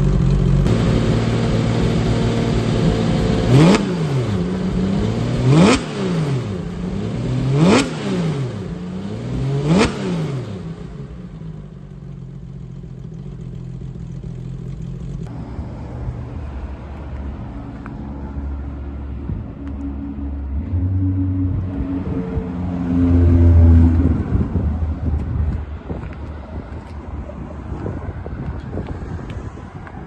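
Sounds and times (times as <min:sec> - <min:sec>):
car engine idling: 0:00.0 - 0:03.6, 0:10.6 - 0:27.0
car engine revving: 0:00.0 - 0:11.4, 0:17.7 - 0:27.0.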